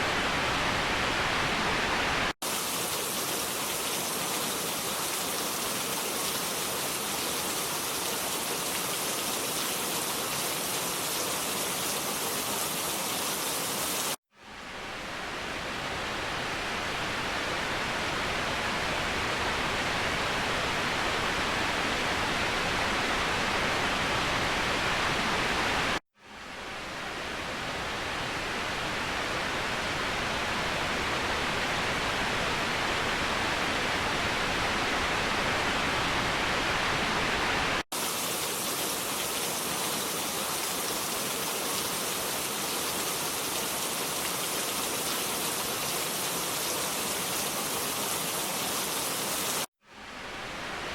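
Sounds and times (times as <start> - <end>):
waterfall rushing: 35.0 - 50.9.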